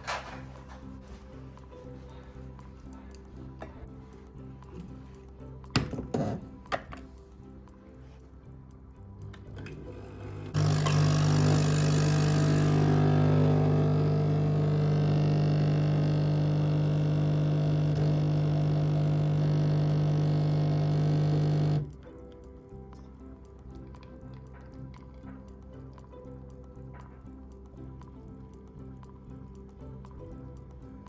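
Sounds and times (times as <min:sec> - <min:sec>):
electric motor humming: 0:09.7 - 0:21.9.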